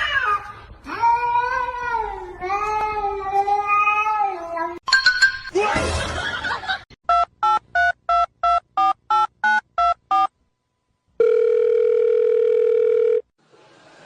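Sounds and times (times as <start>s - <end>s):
phone ringing tone: 11.2s - 13.3s.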